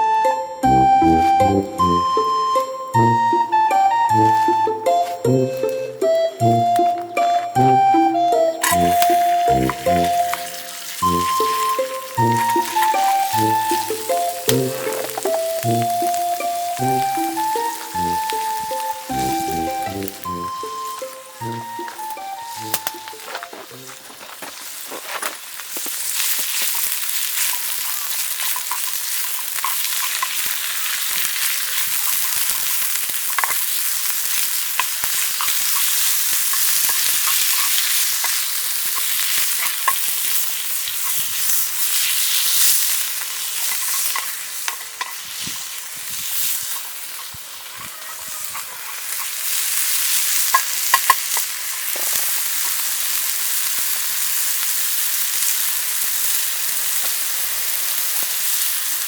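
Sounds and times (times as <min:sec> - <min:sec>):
food sizzling in a frying pan: 0:08.5 - 0:59.0
utensil clicks stirring food: 0:26.2 - 0:42.1, 0:43.2 - 0:45.2, 0:48.6 - 0:52.9.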